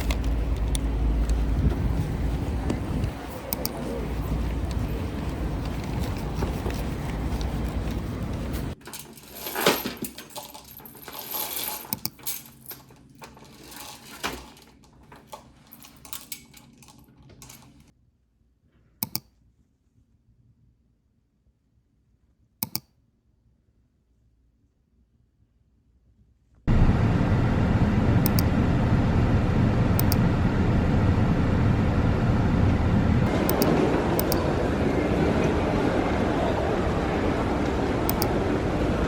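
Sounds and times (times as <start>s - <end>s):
steady noise: 26.7s - 39.0s.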